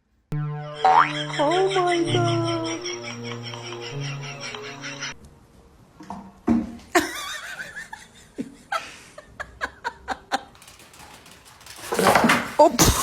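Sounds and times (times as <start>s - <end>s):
person laughing: 0.9s - 5.2s, 7.0s - 10.6s.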